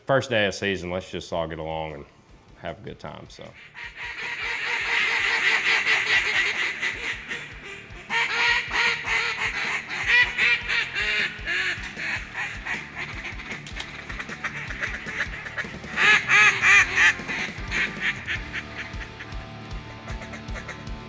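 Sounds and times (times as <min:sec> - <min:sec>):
ducks quacking: 0:03.2 - 0:21.0.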